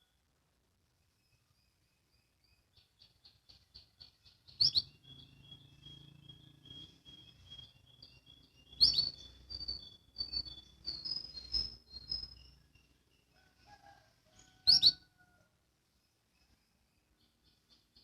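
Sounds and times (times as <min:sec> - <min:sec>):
canary chirping: 0:02.5 - 0:15.2
loud sharp bird notes: 0:04.2 - 0:12.6.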